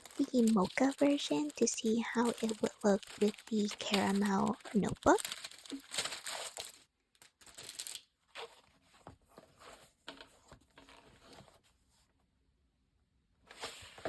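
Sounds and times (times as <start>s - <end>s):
packaging rustling and crinkling: 0.0s - 11.6s.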